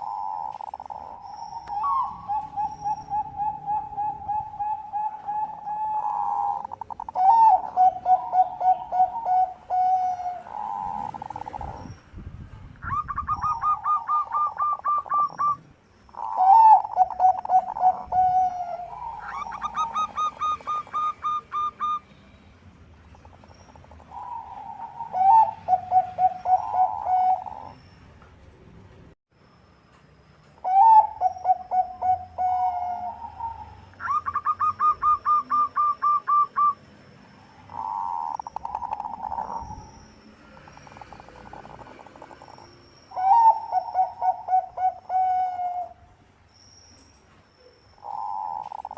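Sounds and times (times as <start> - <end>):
dove cooing: 0.0 - 11.9, 12.8 - 22.0, 23.4 - 27.8, 30.6 - 36.8, 37.7 - 39.9, 40.7 - 46.0, 48.0 - 48.9.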